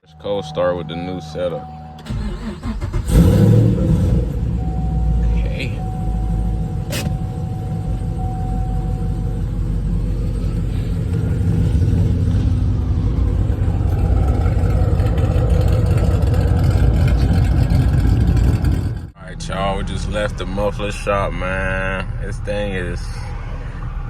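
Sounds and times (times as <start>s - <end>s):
car engine idling loudly: 3.0s - 20.0s.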